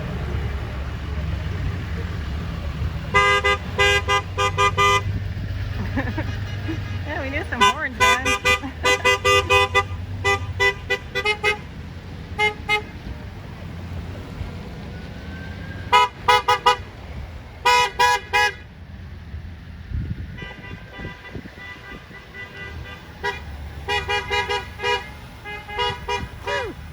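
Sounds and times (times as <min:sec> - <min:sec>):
low rumble of passing engines: 0:00.0 - 0:26.9
vehicle horns honking: 0:03.1 - 0:05.2, 0:06.3 - 0:13.0, 0:15.9 - 0:16.9, 0:17.6 - 0:18.7, 0:20.3 - 0:26.9.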